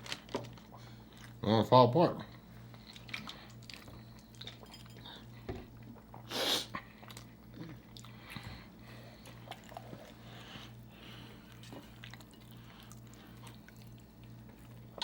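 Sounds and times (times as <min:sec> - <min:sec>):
faint electrical hum: 0:00.0 - 0:15.0
chewing and mouth clicks: 0:02.7 - 0:05.0, 0:05.8 - 0:08.6, 0:09.2 - 0:10.8, 0:11.4 - 0:15.0.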